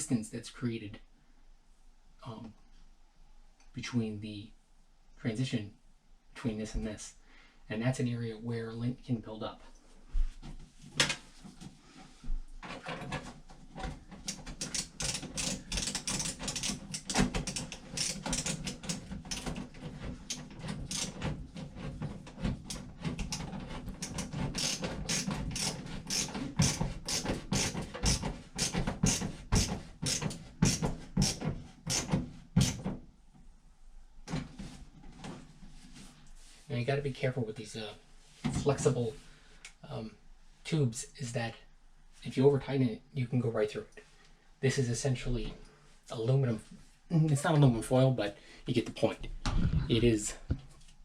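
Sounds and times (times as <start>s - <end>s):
clamp ratcheting clicks: 14.2s - 19.6s, 20.3s - 21.3s, 22.7s - 32.8s.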